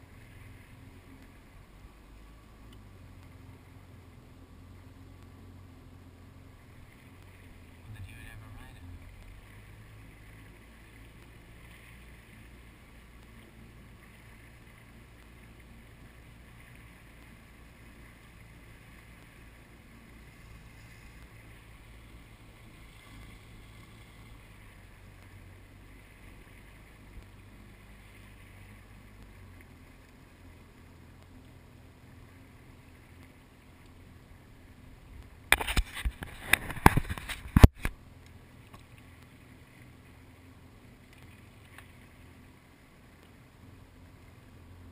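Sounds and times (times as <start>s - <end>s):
jet ski engine running: 0.0s - 44.9s
crackling hits on microphone: 35.5s - 38.0s.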